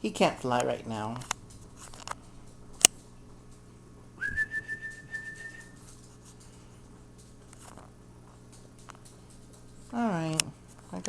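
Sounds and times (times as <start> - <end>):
long whistled note: 4.2 - 5.8.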